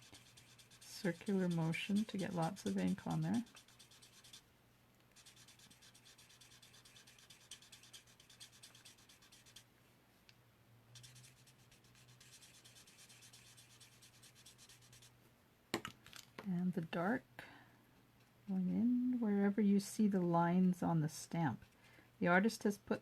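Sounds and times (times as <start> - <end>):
marker scratching on card: 0.0 - 4.4, 5.1 - 9.6, 11.0 - 15.1.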